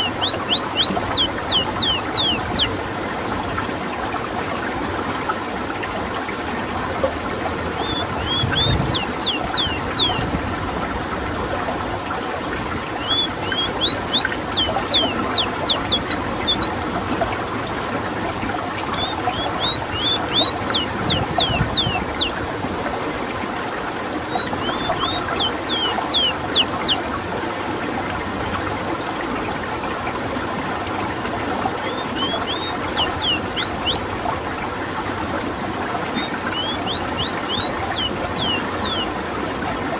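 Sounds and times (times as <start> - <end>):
bird singing: 0.0 - 2.8, 7.7 - 10.4, 12.8 - 17.0, 18.8 - 22.5, 24.2 - 27.2, 31.7 - 34.2, 36.1 - 39.2.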